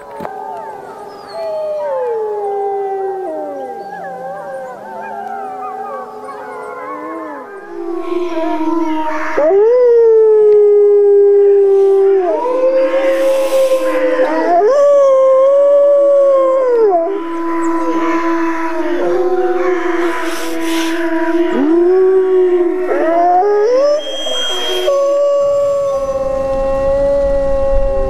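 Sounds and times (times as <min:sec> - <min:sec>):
wolves howling in chorus: 0:00.0 - 0:28.0.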